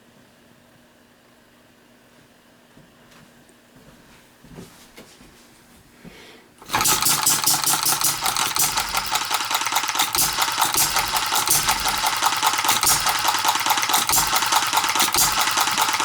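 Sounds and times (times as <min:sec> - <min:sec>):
model engine clattering: 0:06.6 - 0:16.0.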